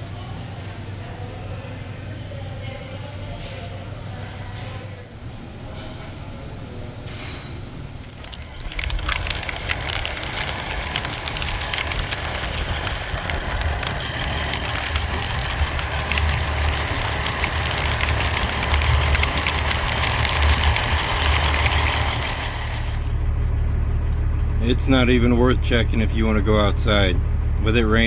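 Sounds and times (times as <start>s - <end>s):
heavy rain pattering: 8.0s - 23.2s
truck engine idling: 8.0s - 28.0s.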